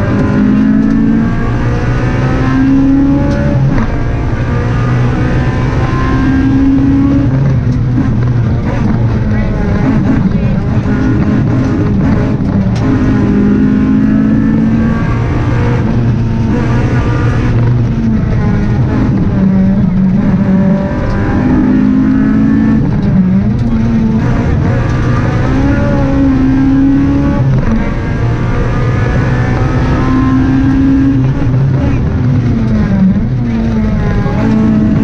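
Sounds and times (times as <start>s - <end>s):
rally car engine revving: 0.0s - 35.0s.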